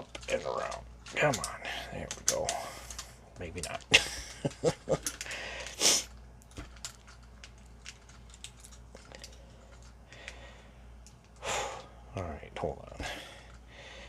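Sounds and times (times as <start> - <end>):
plastic toy parts clicking: 0.0 - 3.9.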